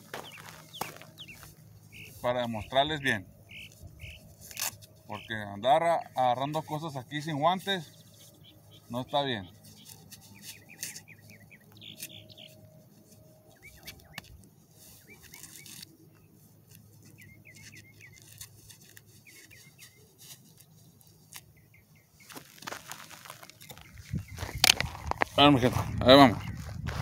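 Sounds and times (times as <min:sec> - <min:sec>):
footsteps on gravel: 0:00.0 - 0:05.5, 0:22.0 - 0:27.0
small birds chirping: 0:00.0 - 0:27.0.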